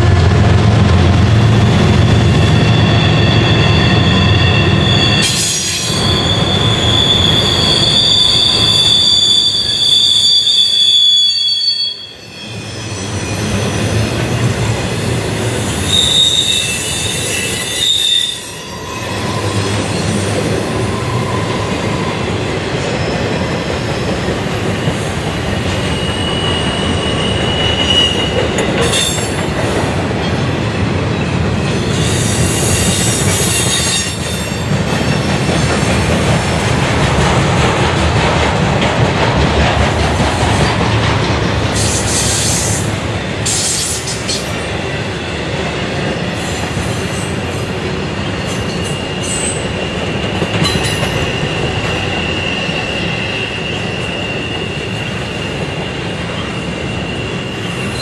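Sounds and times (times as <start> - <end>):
train wheels rumbling on rail: 0.0 - 58.0
high-pitched wheel squeal: 2.0 - 14.1, 14.9 - 22.4, 25.8 - 29.4, 48.3 - 58.0.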